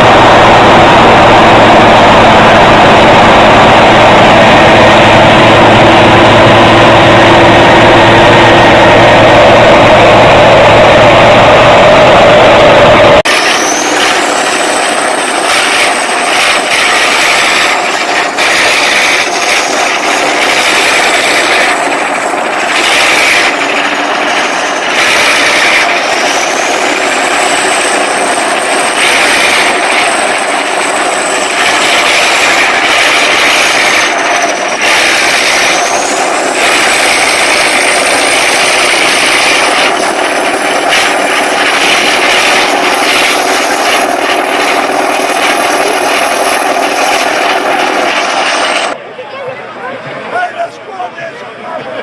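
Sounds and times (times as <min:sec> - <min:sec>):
heavy machinery engine running: 0:00.0 - 0:49.0
machine high whine: 0:00.0 - 0:49.0
machine clattering: 0:13.3 - 0:49.0.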